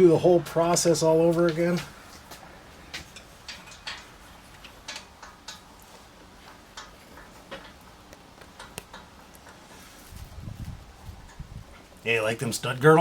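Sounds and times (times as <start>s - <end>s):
hand tools tapping on bolts: 1.4s - 9.9s.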